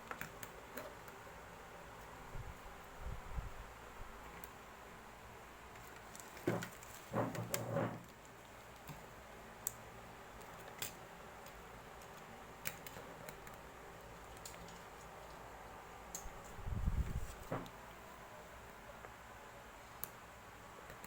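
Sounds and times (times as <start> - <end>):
rustle and clatter of objects: 5.7 - 9.3, 10.3 - 18.0.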